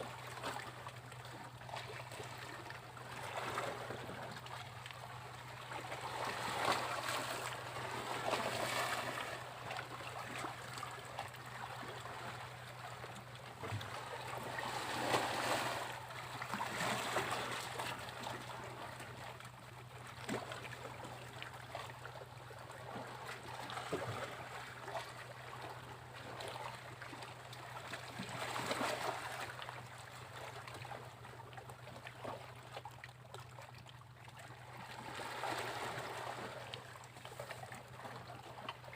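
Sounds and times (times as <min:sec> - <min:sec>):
sea waves breaking on beach: 0:14.4 - 0:17.8.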